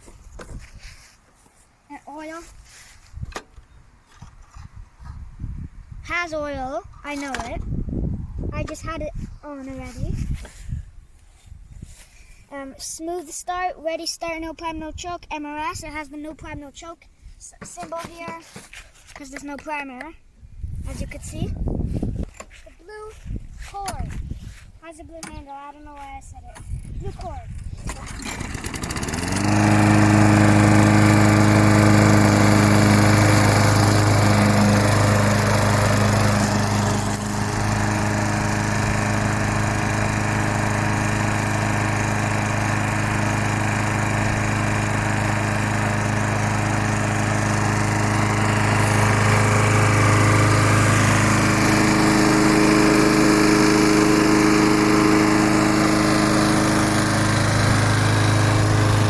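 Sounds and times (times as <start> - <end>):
lawnmower engine running: 26.7 - 59.0.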